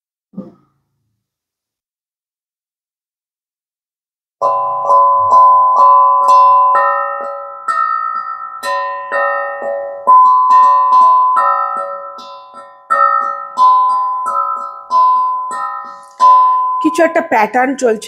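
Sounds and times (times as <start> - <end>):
bell-like keyboard melody: 4.4 - 17.5.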